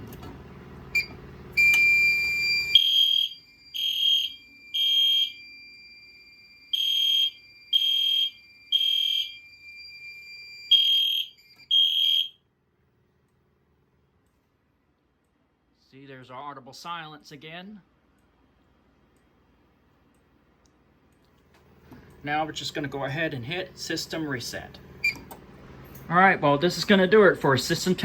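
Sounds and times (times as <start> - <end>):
fire alarm horn blasts: 1.0 - 12.5.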